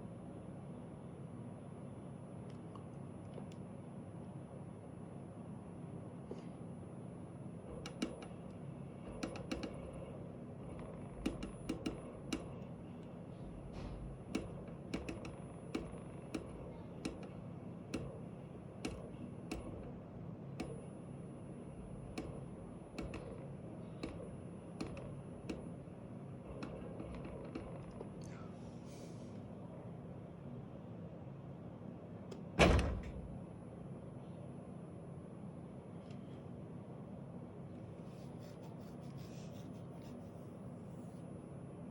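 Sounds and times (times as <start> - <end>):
steady low hum: 0.0 - 41.9
actuator clicking: 7.7 - 10.0, 10.6 - 13.1, 13.7 - 20.0, 22.0 - 25.8.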